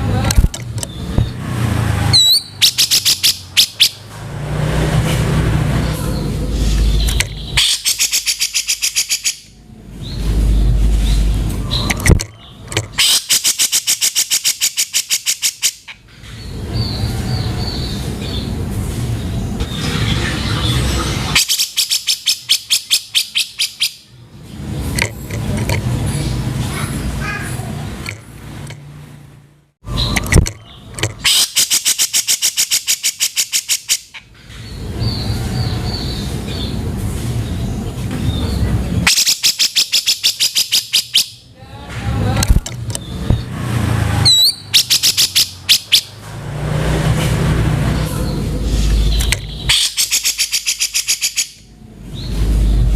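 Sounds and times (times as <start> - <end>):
bird calling harsh notes: 2.0 - 4.1, 6.1 - 18.4, 20.0 - 24.1, 29.8 - 36.3, 39.0 - 41.5, 43.0 - 46.2, 48.0 - 52.9
bird whistle: 2.1 - 4.0, 21.4 - 24.0, 39.1 - 41.4, 44.2 - 46.1, 49.1 - 51.6.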